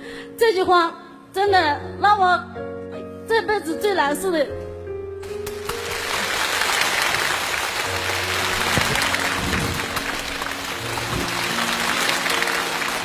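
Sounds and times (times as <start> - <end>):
background music of low notes: 0.0 - 13.0
audience applauding: 5.5 - 13.0.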